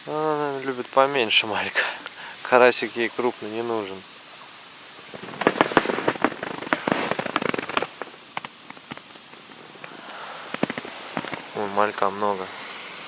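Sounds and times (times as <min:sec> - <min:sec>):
rapid crackling clicks: 0:04.9 - 0:12.3.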